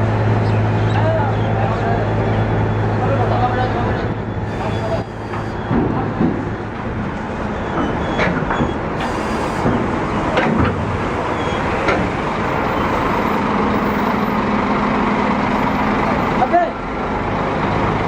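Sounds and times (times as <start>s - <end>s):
coach diesel engine running: 0.0s - 18.0s
short high squeaks: 4.3s - 5.8s, 7.5s - 10.0s, 12.5s - 14.4s, 15.4s - 16.4s.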